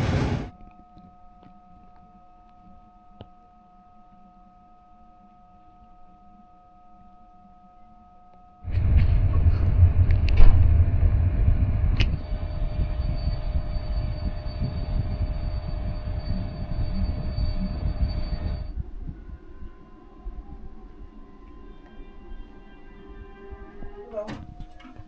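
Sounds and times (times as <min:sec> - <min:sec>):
train rumbling on rails: 0:00.0 - 0:00.5, 0:08.7 - 0:18.9
high steady whine: 0:00.0 - 0:00.8, 0:08.6 - 0:25.0.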